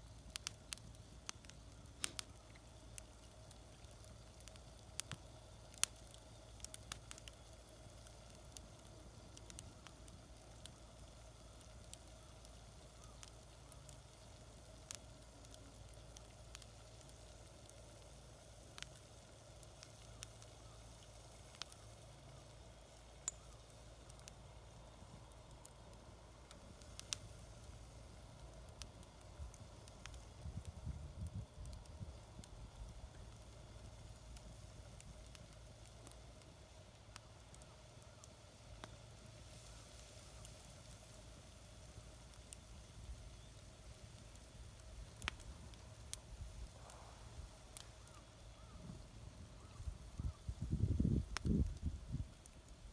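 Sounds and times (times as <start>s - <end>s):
fire pops: 0.0s - 52.9s
low hiss: 0.0s - 52.9s
wood fire crackling: 0.0s - 52.9s.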